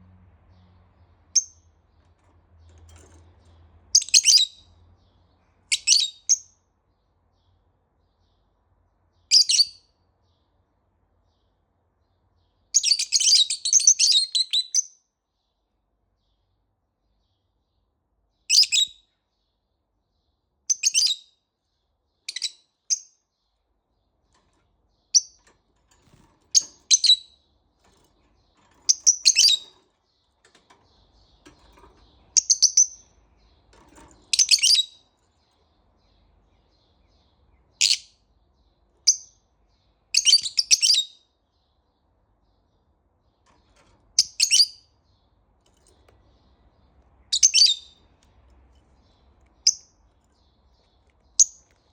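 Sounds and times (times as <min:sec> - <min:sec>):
parrotlet chirping: 0:01.3 - 0:01.7, 0:03.9 - 0:04.6, 0:05.7 - 0:06.5, 0:09.3 - 0:09.8, 0:12.7 - 0:14.9, 0:18.5 - 0:19.0, 0:20.7 - 0:21.3, 0:22.3 - 0:23.0, 0:26.5 - 0:27.4, 0:28.9 - 0:29.7, 0:32.1 - 0:33.1, 0:34.3 - 0:35.0, 0:37.8 - 0:38.1, 0:40.1 - 0:41.2, 0:44.2 - 0:44.9, 0:47.2 - 0:48.1, 0:49.5 - 0:50.0, 0:51.3 - 0:51.8.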